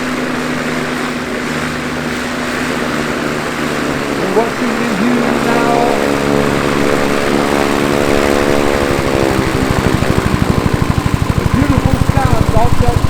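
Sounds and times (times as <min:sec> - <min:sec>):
helicopter engine and rotor: 0:00.0 - 0:13.0.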